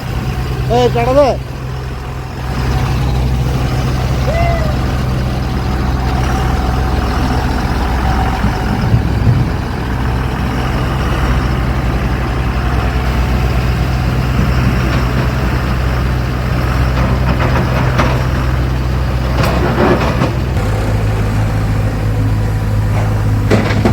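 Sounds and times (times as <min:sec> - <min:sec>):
heavy vehicle engine running: 0:00.0 - 0:23.9
sharp knocks: 0:19.4 - 0:23.9.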